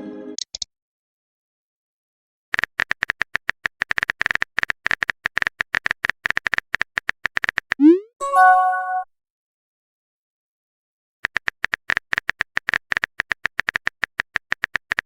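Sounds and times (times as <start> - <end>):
short electronic blips: 7.8 - 8.4.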